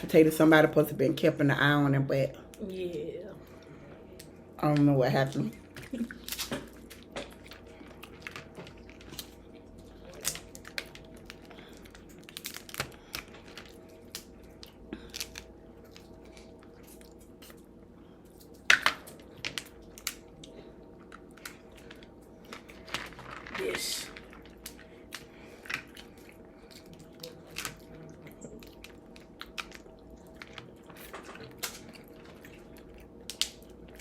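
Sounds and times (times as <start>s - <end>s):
chewing: 5.6s - 23.4s, 24.2s - 34.0s
crinkling: 5.7s - 34.0s
crab shells cracking: 6.2s - 17.0s, 18.3s - 34.0s.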